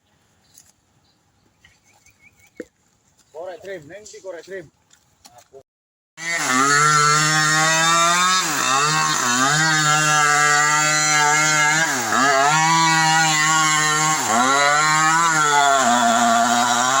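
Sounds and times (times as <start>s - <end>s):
chainsaw running at high revs: 6.2s - 17.0s.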